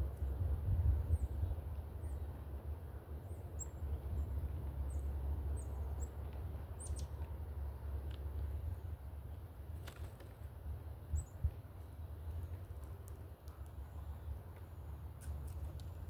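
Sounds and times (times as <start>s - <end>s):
small birds chipping: 3.2s - 8.5s.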